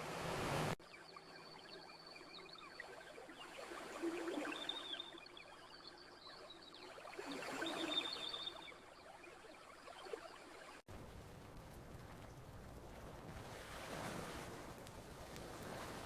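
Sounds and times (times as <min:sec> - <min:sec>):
campfire crackling: 0:10.9 - 0:16.0
small waves washing in: 0:13.0 - 0:16.0.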